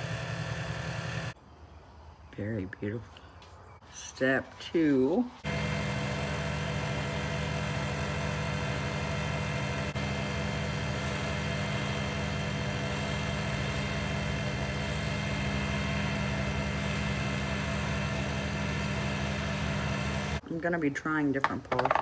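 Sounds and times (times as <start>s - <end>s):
wood lathe motor humming: 0.0s - 1.4s, 5.4s - 20.4s.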